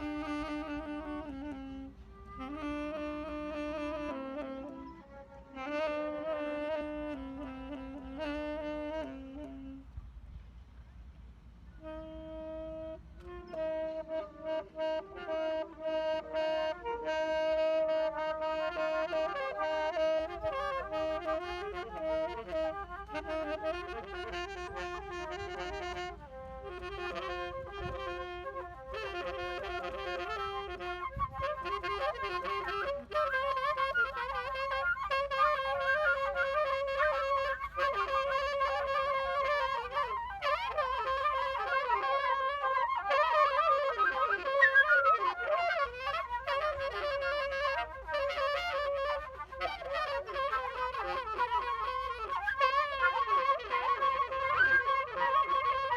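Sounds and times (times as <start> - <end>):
woodwind instruments improvising: 0.0 - 55.9.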